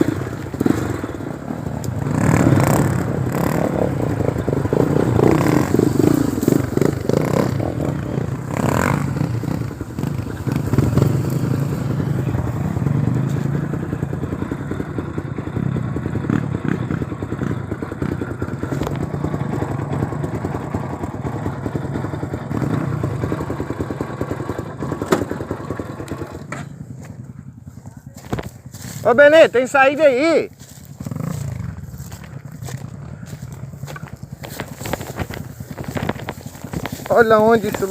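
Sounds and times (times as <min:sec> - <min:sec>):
motorcycle engine running: 0:00.0 - 0:37.9
bike clattering over rough ground: 0:24.8 - 0:29.1, 0:30.6 - 0:37.9.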